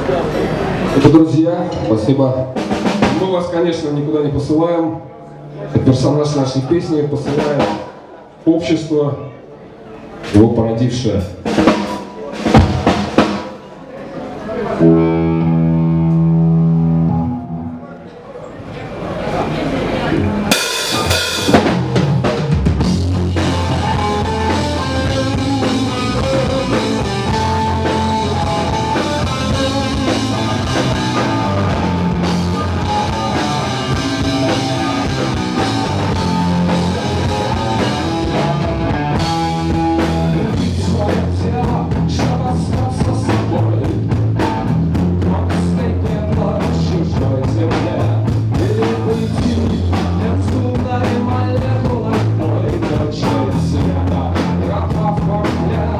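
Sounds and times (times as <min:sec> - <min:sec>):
live rock band playing: 0:01.7 - 0:08.2, 0:11.2 - 0:18.0, 0:19.0 - 0:55.9
loud drum hit: 0:11.4 - 0:13.6, 0:20.5 - 0:52.2.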